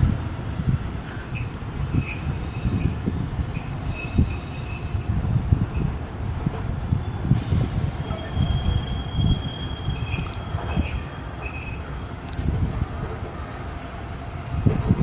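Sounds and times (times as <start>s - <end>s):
high-pitched squeal: 0.0s - 15.0s
clatter of wheels on rails: 9.9s - 13.4s, 14.4s - 15.0s.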